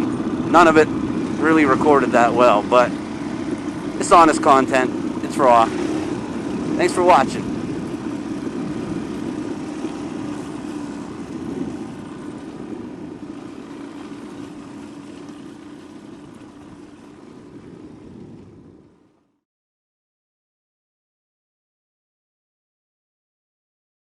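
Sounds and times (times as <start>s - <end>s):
motorcycle engine running: 0.0s - 18.1s
rushing wind: 0.0s - 19.2s.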